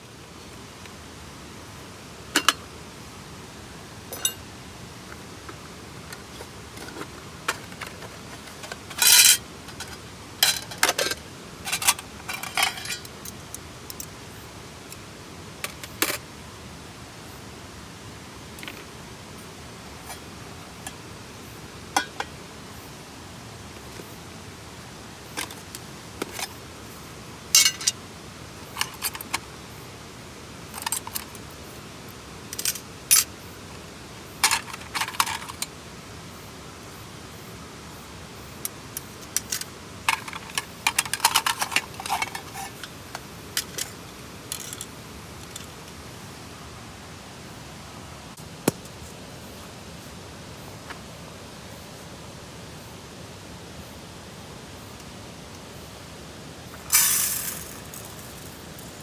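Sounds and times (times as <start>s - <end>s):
steady background hiss: 0.0s - 59.0s
metal camping gear clinking: 2.3s - 2.7s, 4.1s - 4.4s, 6.8s - 14.1s, 22.0s - 22.3s, 25.3s - 26.6s, 27.5s - 28.0s, 28.7s - 29.4s, 30.7s - 31.4s, 32.6s - 33.3s, 34.4s - 35.7s, 39.3s - 45.7s, 56.8s - 59.0s.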